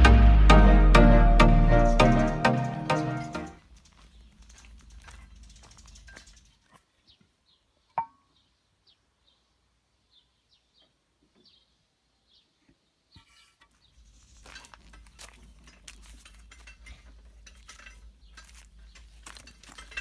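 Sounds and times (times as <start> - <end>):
clattering handling noise: 14.0 - 20.0.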